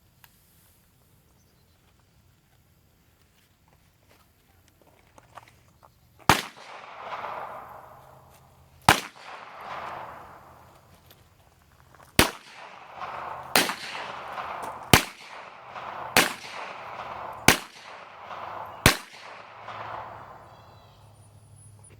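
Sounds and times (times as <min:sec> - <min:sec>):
loud sharp bangs with echo: 0:06.3 - 0:11.0, 0:12.2 - 0:21.2.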